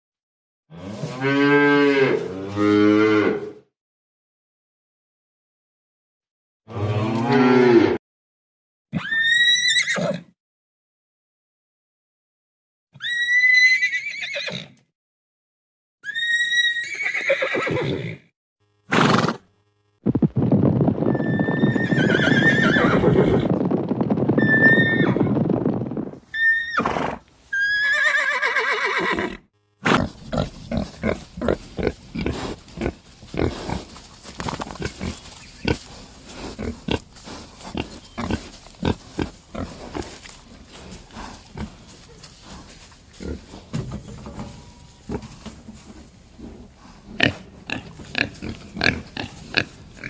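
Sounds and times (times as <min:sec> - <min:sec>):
horse whinnying: 0:08.9 - 0:10.3, 0:13.0 - 0:14.8, 0:16.0 - 0:18.3, 0:21.1 - 0:23.5, 0:24.4 - 0:25.3, 0:26.3 - 0:29.5.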